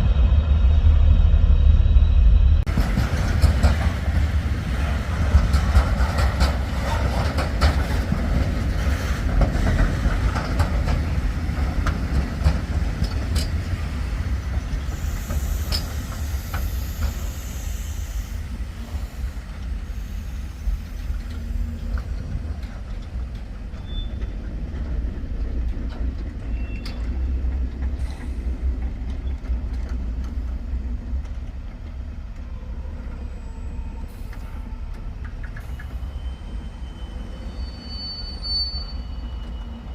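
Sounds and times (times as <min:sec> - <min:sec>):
train rumbling on rails: 0:00.0 - 0:39.9
faint high squeals: 0:32.7 - 0:39.9.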